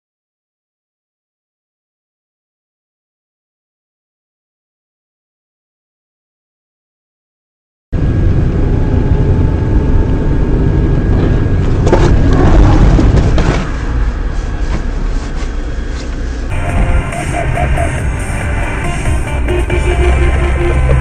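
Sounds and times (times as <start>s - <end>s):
car road and engine rumble: 8.0s - 21.0s.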